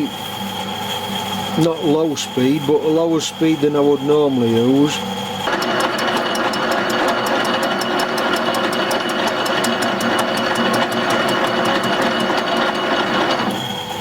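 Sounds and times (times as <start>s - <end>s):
lathe tool ticking on metal: 5.5s - 13.6s
lathe cutting noise: 5.5s - 14.0s.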